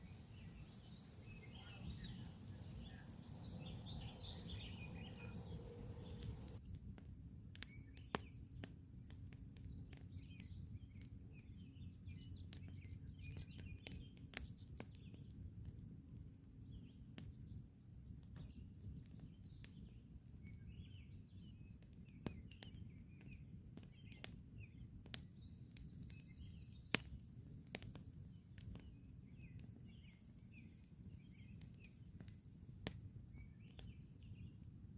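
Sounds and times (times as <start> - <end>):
low steady rumble: 0.0 - 6.6
birds chirping faintly: 0.0 - 6.7, 16.7 - 34.7
campfire crackling and popping: 0.0 - 34.9.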